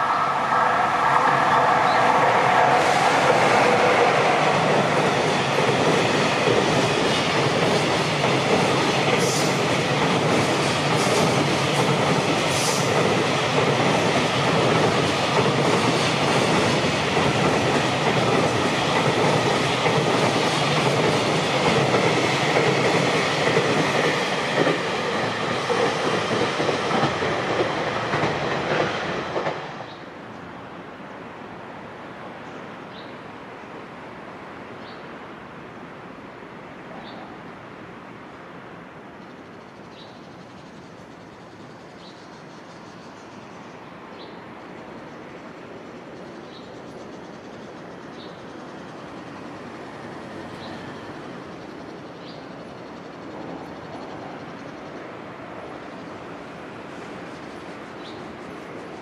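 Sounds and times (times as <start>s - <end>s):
train rumbling past: 0.0s - 59.0s
steel wheels rattling on rail: 1.2s - 29.9s.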